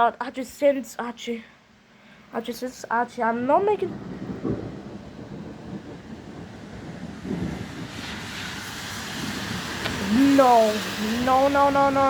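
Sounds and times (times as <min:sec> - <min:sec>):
rain on microphone: 0:02.6 - 0:12.0
wind on microphone: 0:03.5 - 0:12.0.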